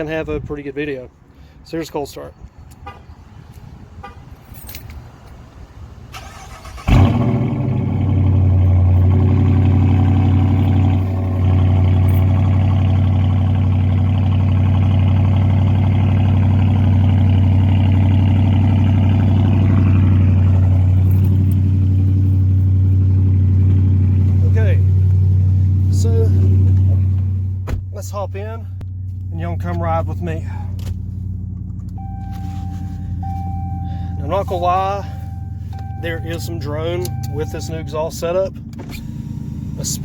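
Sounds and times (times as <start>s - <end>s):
car starter cranking: 6.1s - 8.4s, 38.6s - 40.0s
car engine idling: 6.2s - 40.0s.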